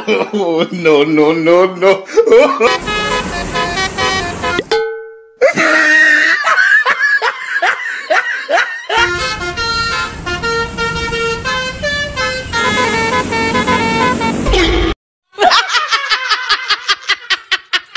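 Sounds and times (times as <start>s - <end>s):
bus musical horn tune: 2.6s - 4.8s, 9.0s - 15.0s.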